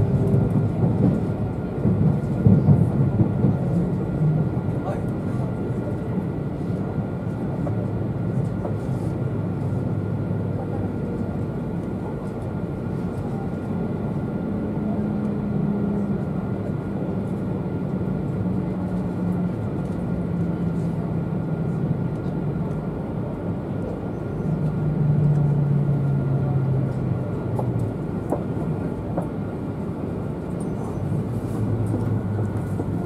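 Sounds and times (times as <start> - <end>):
passenger train rumbling: 0.0 - 33.0.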